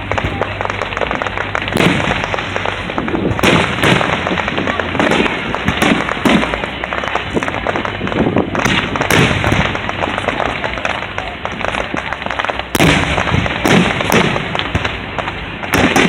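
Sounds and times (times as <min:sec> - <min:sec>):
fireworks booming bursts: 0:00.0 - 0:16.0
fireworks crackling: 0:00.0 - 0:16.0.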